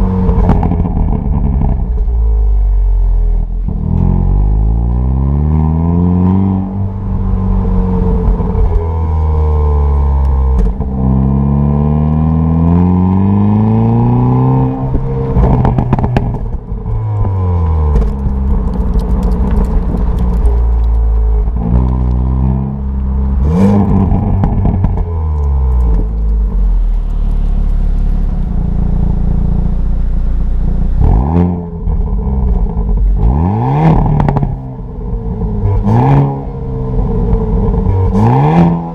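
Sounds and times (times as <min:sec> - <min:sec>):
exhaust pops and crackles: 0:00.0 - 0:02.3, 0:10.1 - 0:11.1, 0:14.9 - 0:38.4
car engine accelerating through gears: 0:03.6 - 0:29.9, 0:30.6 - 0:38.9.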